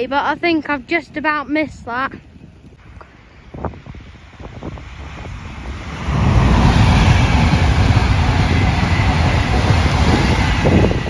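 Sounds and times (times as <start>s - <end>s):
passing train rush: 2.2s - 11.0s.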